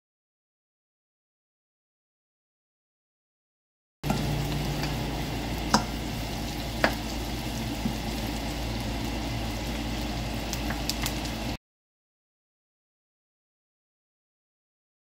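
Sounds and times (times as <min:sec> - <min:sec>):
meat sizzling in a wok: 0:04.0 - 0:11.6.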